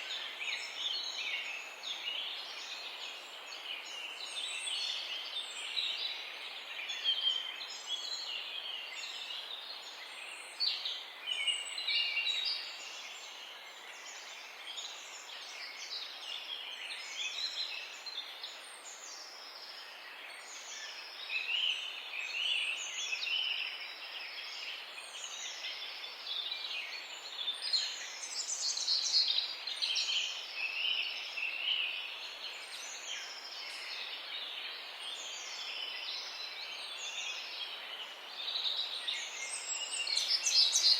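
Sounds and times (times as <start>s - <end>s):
songbirds chirping and singing: 18.9s - 40.9s.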